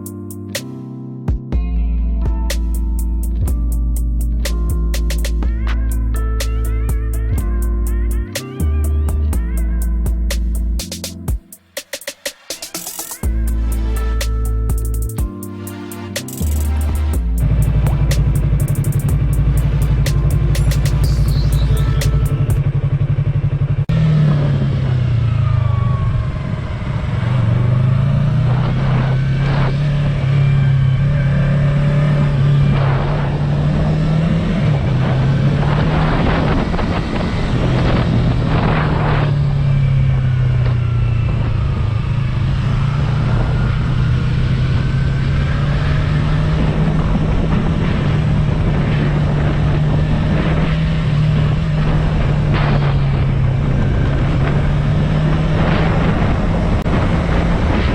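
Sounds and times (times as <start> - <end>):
motorcycle engine revving: 16.1 - 57.9.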